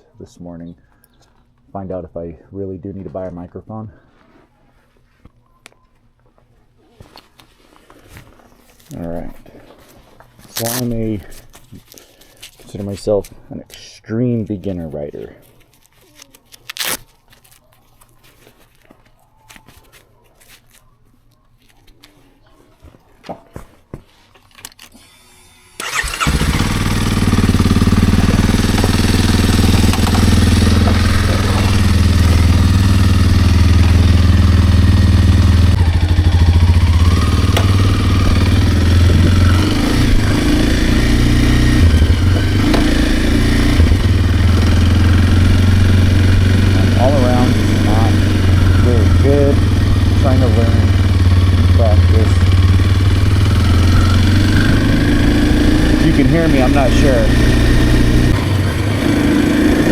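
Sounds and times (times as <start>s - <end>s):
motorcycle engine idling: 25.8s - 59.9s.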